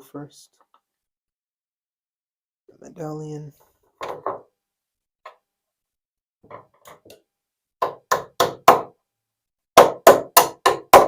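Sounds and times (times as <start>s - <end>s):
sharp knocks on wooden handle: 7.8s - 8.9s, 9.8s - 11.0s.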